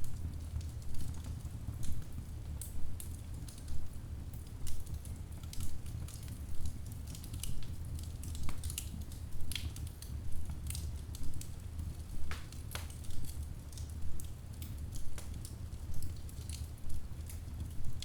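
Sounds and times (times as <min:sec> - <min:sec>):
low rumble of flames: 0:00.0 - 0:18.0
logs crackling and popping: 0:04.3 - 0:18.0.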